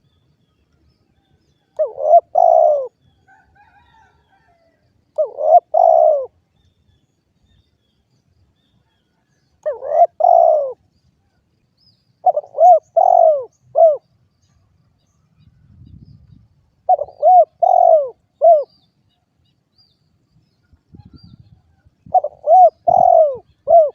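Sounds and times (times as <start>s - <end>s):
dove cooing: 1.8s - 4.6s, 5.2s - 6.4s, 9.6s - 10.8s, 12.2s - 14.1s, 16.9s - 18.7s, 22.0s - 23.9s.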